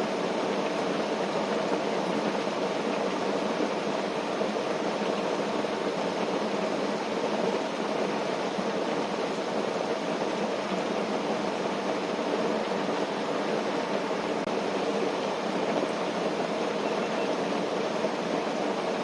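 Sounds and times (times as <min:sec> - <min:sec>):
rain falling on a tent: 0:00.0 - 0:19.0.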